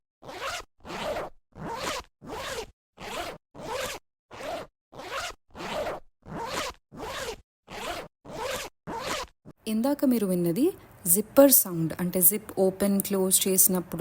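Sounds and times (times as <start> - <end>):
zipper zipping open and closed: 0.2 - 9.6.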